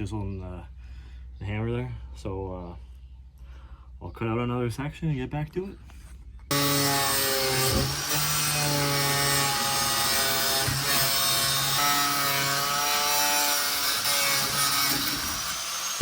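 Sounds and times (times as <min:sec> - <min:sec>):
angle grinder cutting: 0:06.5 - 0:16.0.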